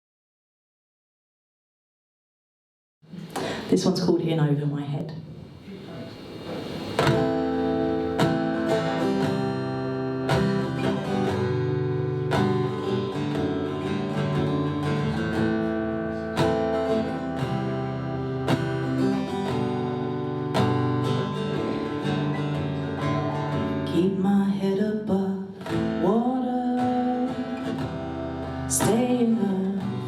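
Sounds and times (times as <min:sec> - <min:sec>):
acoustic guitar strumming chords: 0:06.3 - 0:30.0.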